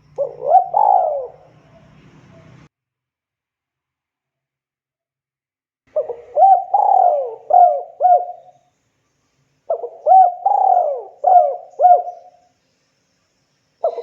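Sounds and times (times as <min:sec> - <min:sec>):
dove cooing: 0:00.0 - 0:02.6, 0:05.9 - 0:08.5, 0:09.7 - 0:12.4.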